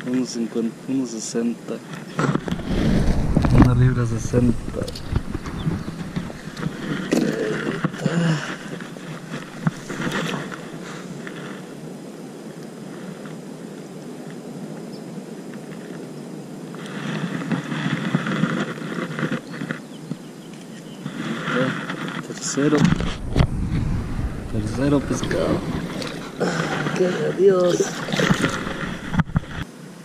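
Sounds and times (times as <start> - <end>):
water splashing: 2.4 - 7.1, 22.8 - 29.6
rustling and scuffing on gravel: 2.4 - 11.7.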